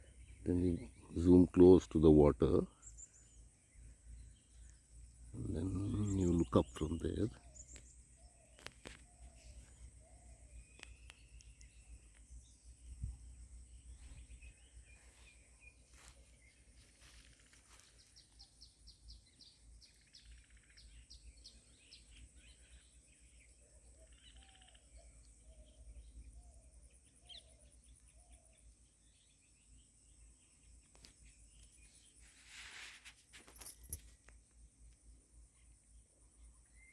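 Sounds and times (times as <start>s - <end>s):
birds chirping: 0.0s - 32.3s
high-pitched insect hum: 2.3s - 36.9s.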